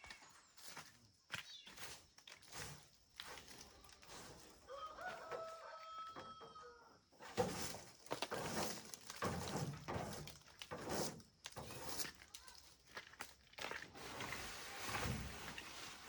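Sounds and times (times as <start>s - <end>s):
rooster crowing: 4.7s - 7.0s.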